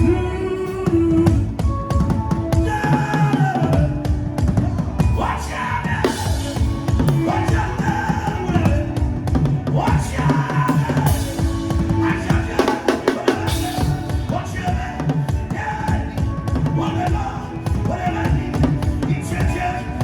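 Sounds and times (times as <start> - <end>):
voices singing: 0.0 - 20.0.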